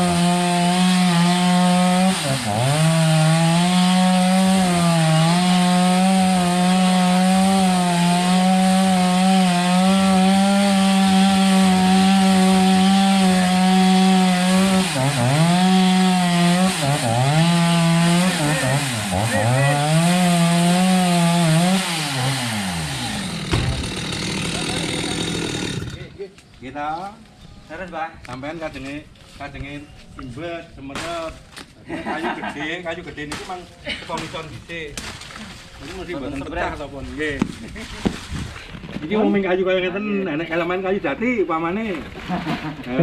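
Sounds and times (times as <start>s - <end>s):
chainsaw cutting wood: 0.0s - 26.2s, 31.0s - 31.3s.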